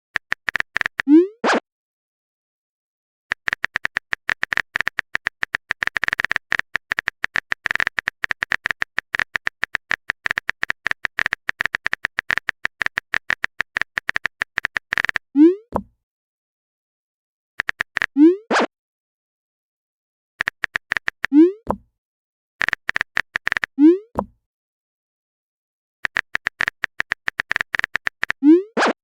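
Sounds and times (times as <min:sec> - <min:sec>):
phone keyboard typing clicks: 0:00.2 - 0:01.1, 0:03.3 - 0:15.9, 0:17.6 - 0:18.2, 0:20.4 - 0:21.9, 0:22.6 - 0:24.4, 0:26.0 - 0:28.4.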